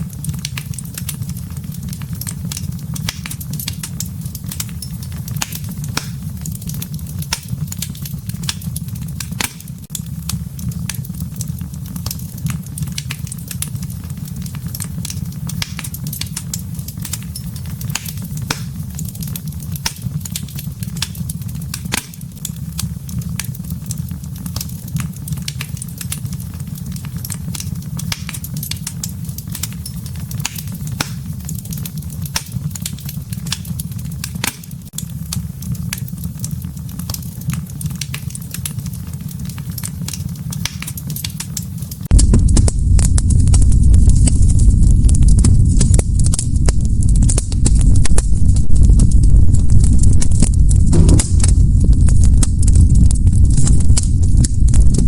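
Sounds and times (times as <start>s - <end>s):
fire low rumble: 0.0s - 55.0s
wood fire crackling and popping: 0.0s - 55.0s.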